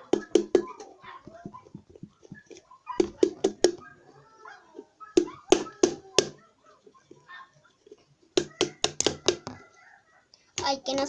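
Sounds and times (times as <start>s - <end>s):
glue bottle being knocked: 0.0s - 2.4s, 3.0s - 3.8s, 8.4s - 9.6s.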